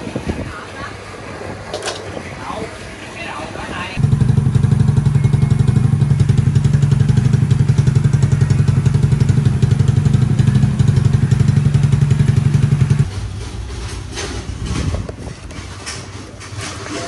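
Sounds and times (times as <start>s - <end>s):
motorcycle engine idling: 4.0s - 13.1s.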